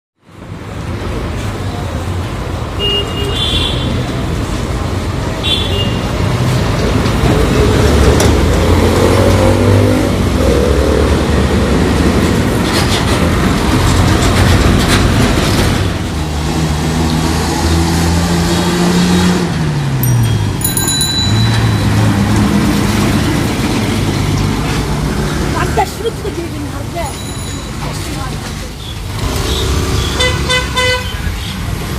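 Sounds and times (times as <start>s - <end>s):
high ringing tone: 20.0s - 22.7s.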